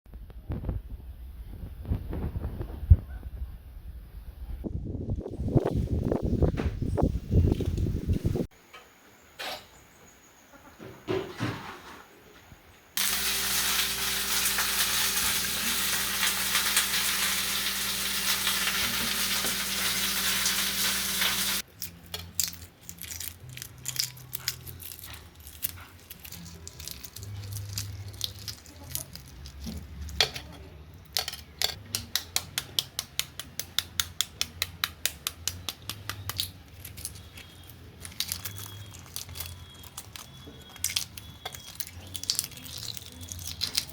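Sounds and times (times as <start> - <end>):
food sizzling in a hot pan: 13.0 - 21.6
utensils clicking on pots and dishes: 13.0 - 22.2.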